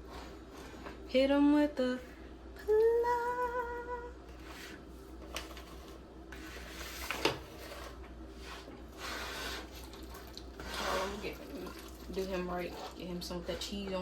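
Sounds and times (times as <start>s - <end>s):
serving spoon scraping and squishing: 5.6s - 13.9s.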